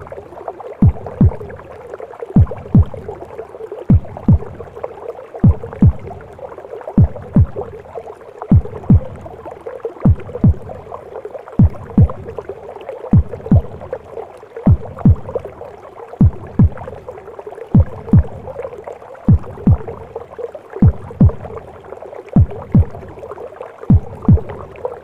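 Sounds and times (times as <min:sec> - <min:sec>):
heartbeat thumps: 0:00.8 - 0:01.7, 0:02.4 - 0:03.2, 0:03.8 - 0:04.8, 0:05.4 - 0:06.3, 0:07.0 - 0:07.8, 0:08.5 - 0:09.4, 0:10.0 - 0:11.0, 0:11.6 - 0:12.5, 0:13.1 - 0:14.0, 0:14.7 - 0:15.6, 0:16.2 - 0:17.0, 0:17.7 - 0:18.7, 0:19.3 - 0:20.2, 0:20.8 - 0:21.7, 0:22.4 - 0:23.2, 0:23.8 - 0:24.8.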